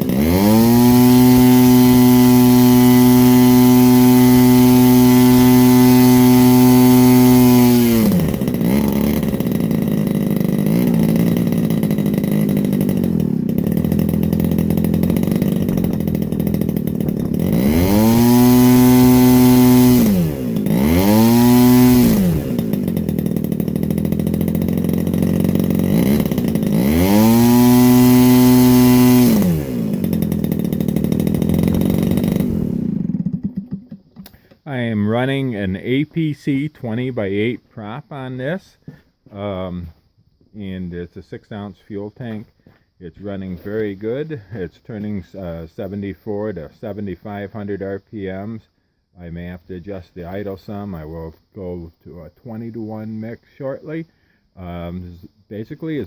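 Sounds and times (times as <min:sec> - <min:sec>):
model airplane engine revving: 0:00.0 - 0:34.6.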